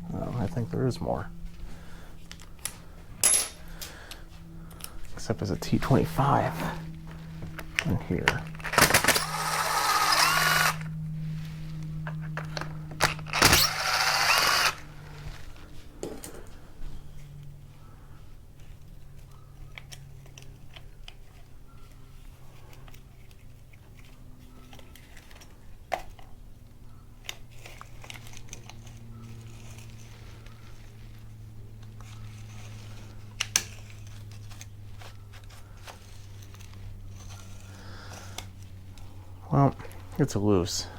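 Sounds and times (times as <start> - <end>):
power driver whirring: 3.6 - 15.6.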